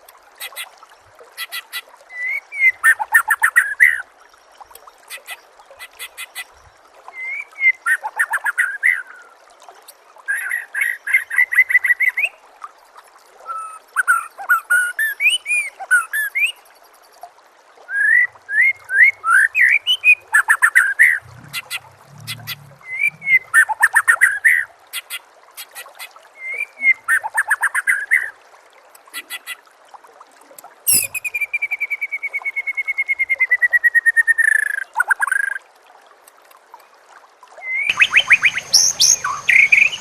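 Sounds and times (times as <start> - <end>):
bird singing whistled phrases: 20.8 - 24.0, 30.9 - 34.8, 37.6 - 40.0.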